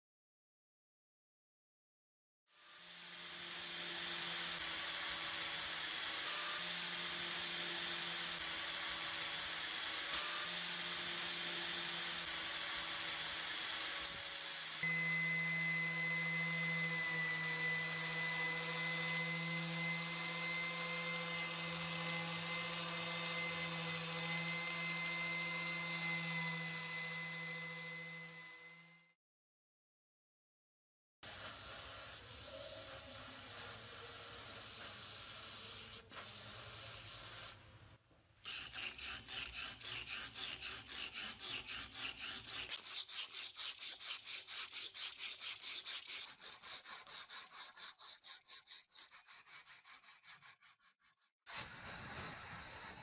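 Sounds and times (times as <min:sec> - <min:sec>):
electric power tool running: 0:02.5 - 0:29.1.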